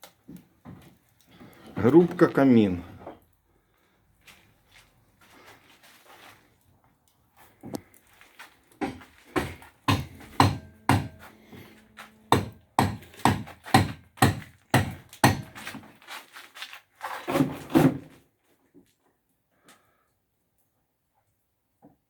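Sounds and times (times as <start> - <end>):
sharp knocks of hard objects: 8.8 - 11.3, 12.3 - 15.8.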